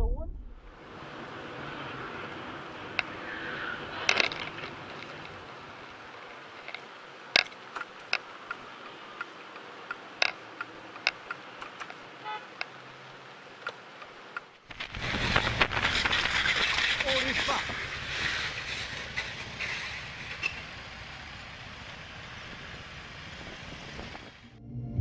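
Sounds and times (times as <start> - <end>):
vehicle road noise: 0.0 - 25.0
sharp clicks and knocks: 4.1 - 5.4, 7.4 - 8.6.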